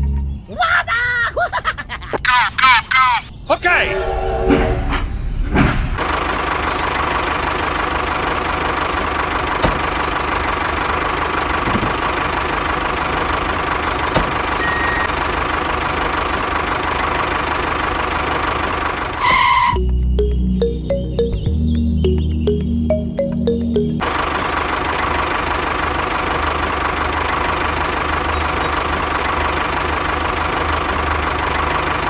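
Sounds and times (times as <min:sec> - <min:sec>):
engine running steadily: 0:03.9 - 0:32.0
brief high tone: 0:19.3 - 0:24.0.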